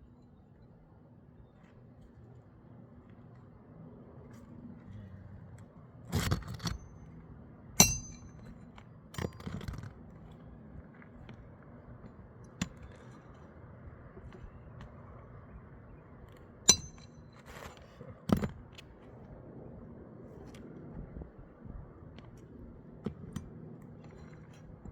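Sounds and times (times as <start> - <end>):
hand tools clinking and scraping: 7.8 - 8.5.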